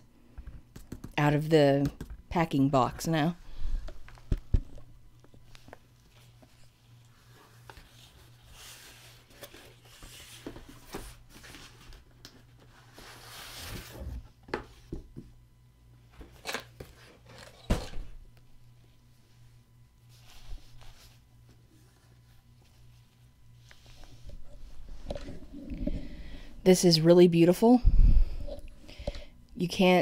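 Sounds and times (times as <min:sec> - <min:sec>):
cardboard rustling and scraping: 0:05.6 - 0:14.3.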